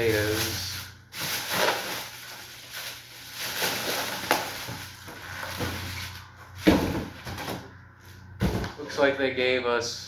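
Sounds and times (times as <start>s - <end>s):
packaging rustling and scraping: 0.0s - 7.6s.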